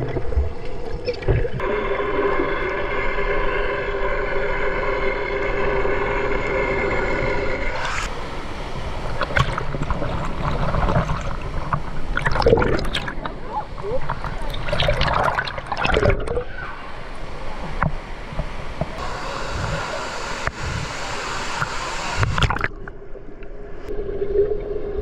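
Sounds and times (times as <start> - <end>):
moving water: 0.0 - 25.0
mechanical hum: 18.9 - 22.6.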